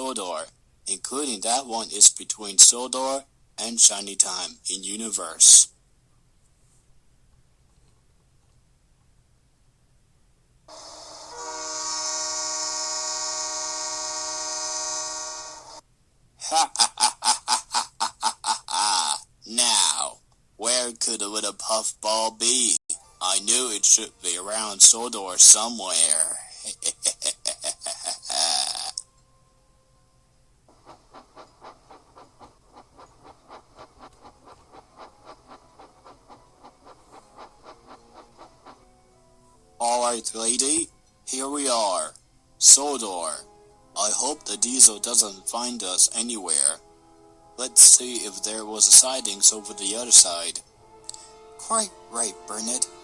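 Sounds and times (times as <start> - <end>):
steam locomotive chuffing: 10.7 - 15.8, 30.7 - 40.6, 47.6 - 50.4
train whistle blast with hiss: 10.7 - 15.8.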